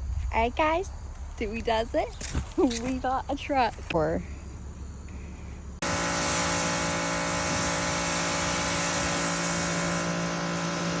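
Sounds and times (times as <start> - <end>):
vehicle engine running: 5.2 - 11.0.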